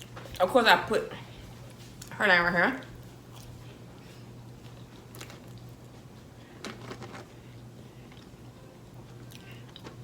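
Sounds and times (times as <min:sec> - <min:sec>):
low steady hum: 0:00.0 - 0:10.0
faint chewing: 0:03.0 - 0:06.4, 0:07.5 - 0:10.0.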